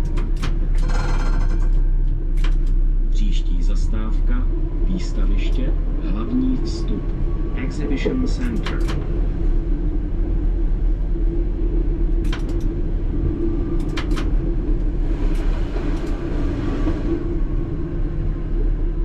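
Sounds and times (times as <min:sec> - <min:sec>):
tram rumbling on rails: 0:00.0 - 0:19.0
sharp clicks: 0:02.3 - 0:02.8, 0:08.4 - 0:09.1, 0:12.2 - 0:12.7, 0:13.8 - 0:14.4.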